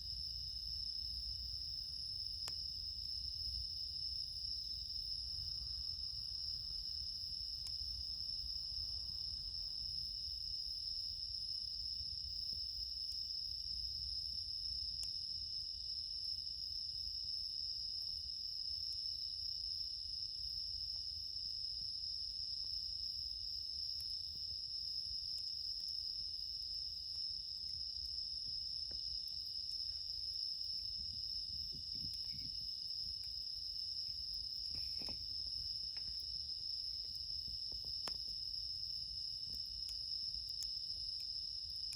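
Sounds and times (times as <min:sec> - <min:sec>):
crickets chirping: 0:00.0 - 0:41.9
campfire crackling: 0:00.2 - 0:10.8, 0:21.4 - 0:41.9.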